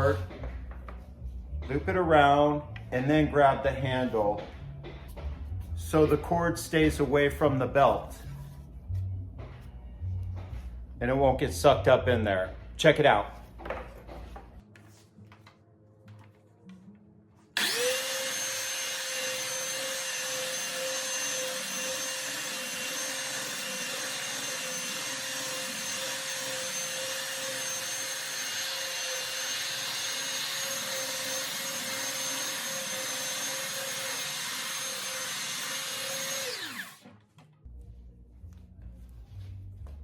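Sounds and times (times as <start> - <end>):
belt sander running: 17.6 - 37.0.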